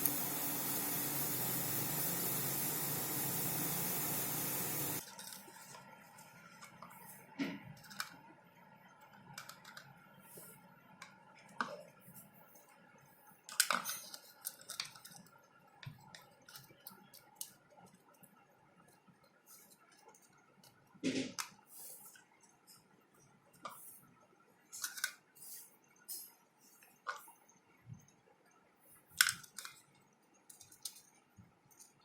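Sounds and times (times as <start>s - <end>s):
small containers and utensils clicking: 13.5s - 18.3s, 24.7s - 25.2s, 29.1s - 32.0s.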